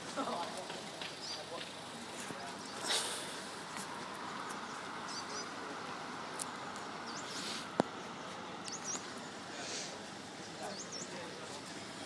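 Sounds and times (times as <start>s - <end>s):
outdoor background noise: 0.0s - 12.0s
high bird chirps: 4.6s - 5.6s, 7.0s - 9.3s.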